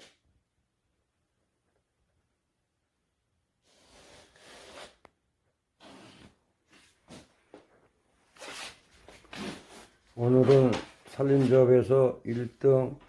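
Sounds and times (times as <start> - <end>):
rustling scraping handling noise: 8.3 - 12.8.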